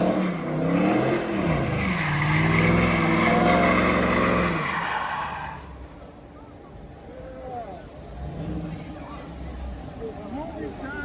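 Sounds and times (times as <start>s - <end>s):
car engine revving hard: 0.0s - 4.8s.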